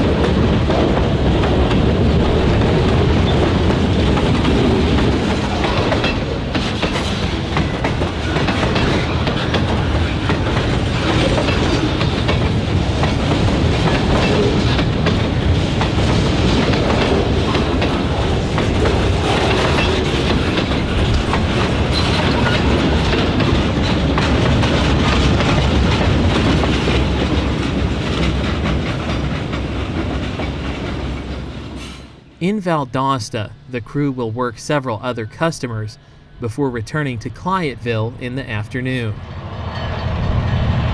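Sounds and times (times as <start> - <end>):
wheels knocking over rail joints: 0.0 - 31.6
freight train rumbling: 0.0 - 40.9.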